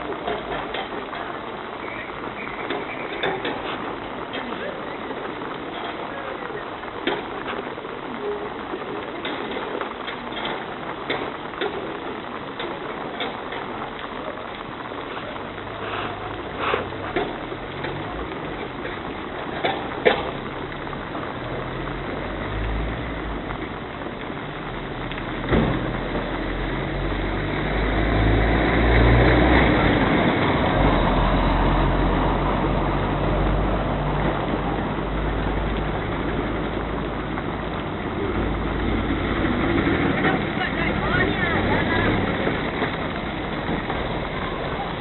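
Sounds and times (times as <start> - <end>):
road and rain noise: 0.0 - 45.0
vehicle engine rumble: 0.0 - 45.0.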